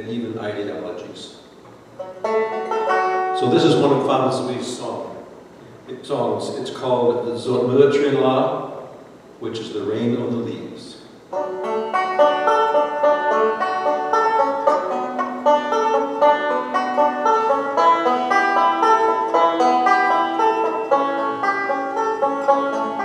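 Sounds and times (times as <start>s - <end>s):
plucked string instrument: 2.0s - 4.6s, 11.3s - 23.0s.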